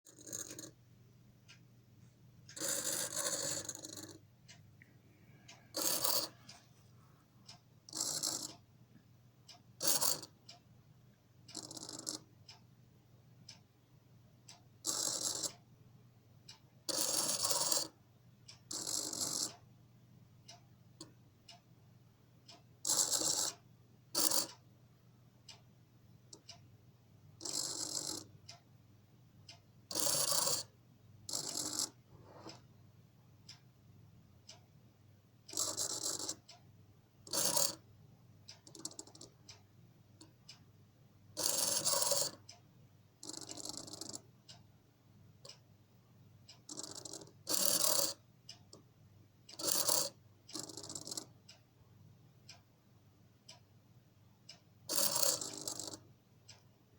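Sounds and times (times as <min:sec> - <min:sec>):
faint clicks: 0:00.1 - 0:00.8, 0:02.5 - 0:06.7, 0:38.5 - 0:40.6.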